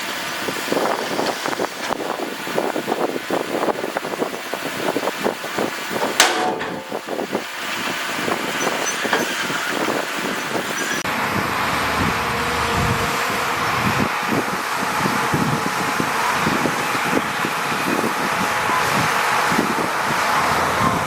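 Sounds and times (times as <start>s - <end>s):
heavy machinery engine rumble: 0.0s - 21.0s
machinery clattering and knocking: 5.2s - 11.0s
sharp bang: 6.0s - 7.3s.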